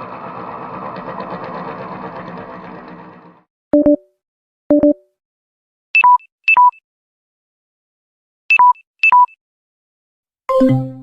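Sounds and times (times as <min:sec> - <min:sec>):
two-tone beeps: 0:03.8 - 0:04.0, 0:04.7 - 0:05.0, 0:06.0 - 0:06.8, 0:08.5 - 0:09.4.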